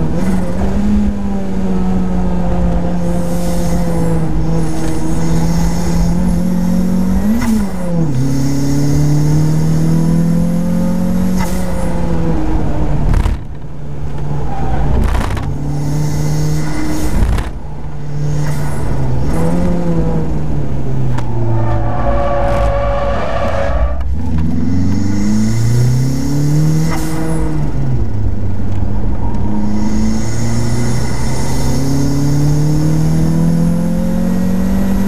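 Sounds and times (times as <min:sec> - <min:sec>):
car engine running hard: 0:00.0 - 0:35.0.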